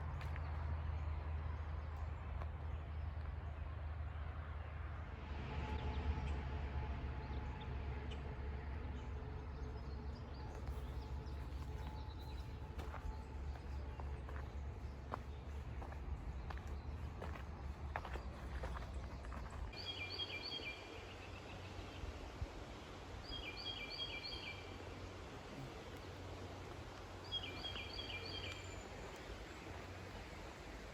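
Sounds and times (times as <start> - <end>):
footsteps on trail: 10.4 - 19.9, 25.9 - 30.4.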